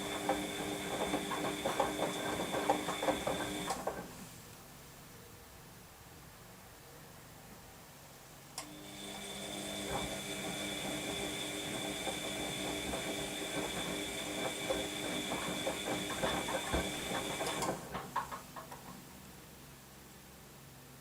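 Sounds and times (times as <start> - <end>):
washing machine motor whining: 0.0 - 4.2, 8.6 - 18.2
drum knocking and tumbling: 13.6 - 19.0.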